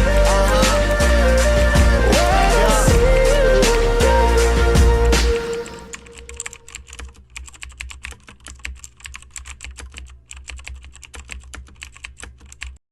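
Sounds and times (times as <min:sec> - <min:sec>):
keyboard typing clicks: 0:05.4 - 0:12.8.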